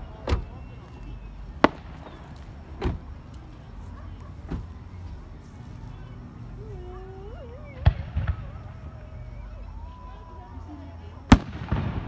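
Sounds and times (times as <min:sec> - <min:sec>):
fireworks bursting: 0:00.0 - 0:03.3, 0:04.4 - 0:09.8, 0:11.2 - 0:12.0
wavering voice-like tone: 0:06.5 - 0:07.9.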